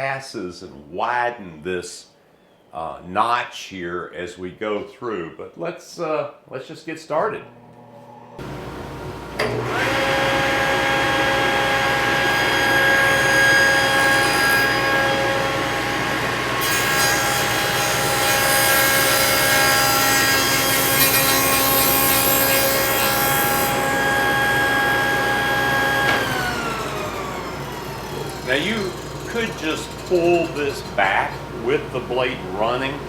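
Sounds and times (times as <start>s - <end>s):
table saw running: 7.6s - 32.7s
saw cutting wood hiss: 16.6s - 31.3s.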